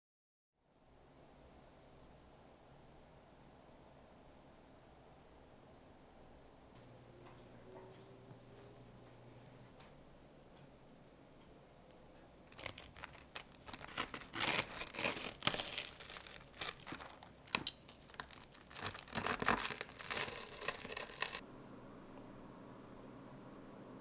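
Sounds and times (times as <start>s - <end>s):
paper crinkling and tearing: 12.5s - 21.4s.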